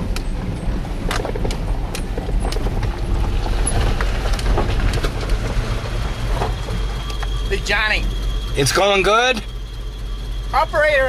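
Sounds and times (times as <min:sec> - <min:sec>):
vehicle engine and road rumble: 0:00.0 - 0:11.0
rattles and knocks: 0:00.1 - 0:07.5.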